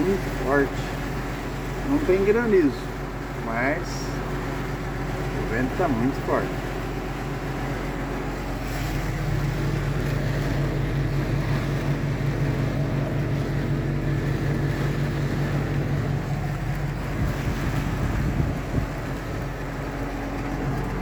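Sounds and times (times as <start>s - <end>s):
engine humming: 0.0s - 21.0s
strong wind: 6.6s - 21.0s.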